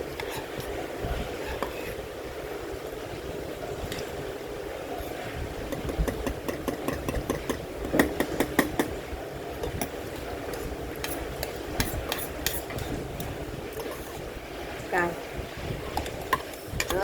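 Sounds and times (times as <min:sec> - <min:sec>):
utensils clicking against bowl: 0:05.7 - 0:09.0, 0:09.6 - 0:14.0.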